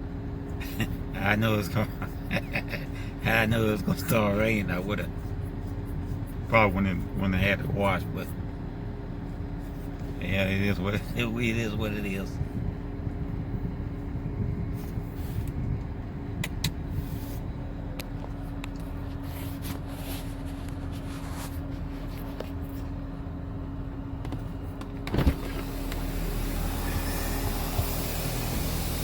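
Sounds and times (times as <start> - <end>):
car engine idling: 0.0 - 29.0
hiss: 25.5 - 29.0.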